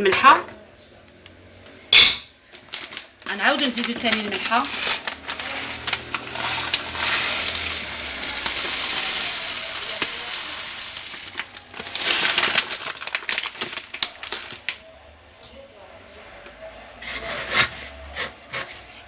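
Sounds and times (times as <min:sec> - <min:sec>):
grains clicking and tapping: 0:02.5 - 0:14.8
salt grains pouring through funnel: 0:04.6 - 0:14.4.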